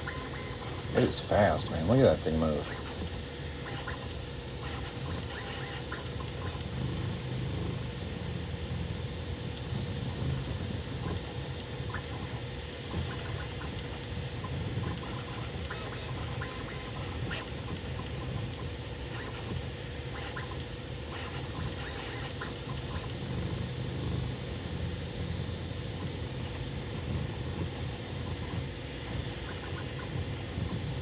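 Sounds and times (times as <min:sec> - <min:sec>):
fan hum: 0:00.0 - 0:03.7.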